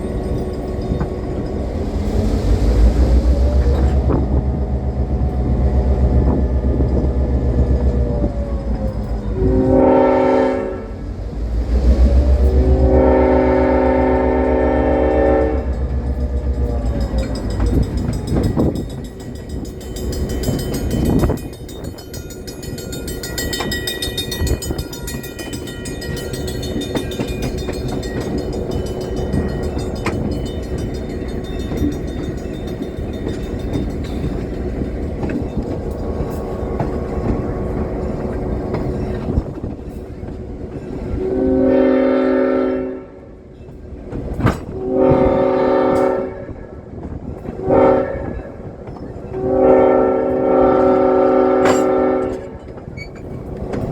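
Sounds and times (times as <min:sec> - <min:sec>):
train wheels rumbling on rails: 0:00.0 - 0:53.9
train horn: 0:09.3 - 0:11.2, 0:12.0 - 0:15.8, 0:41.0 - 0:43.4, 0:44.7 - 0:46.9, 0:47.6 - 0:48.7, 0:49.3 - 0:52.8.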